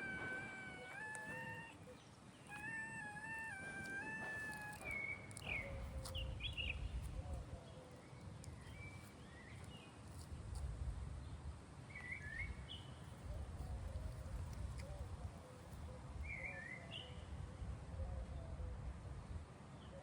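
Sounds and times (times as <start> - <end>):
cat meowing: 0.0 - 5.0.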